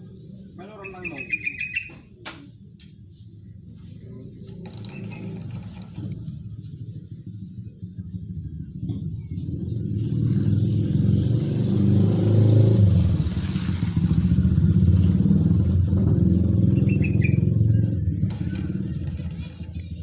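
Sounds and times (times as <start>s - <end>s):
motorcycle-like engine rumble: 2.6s - 20.0s.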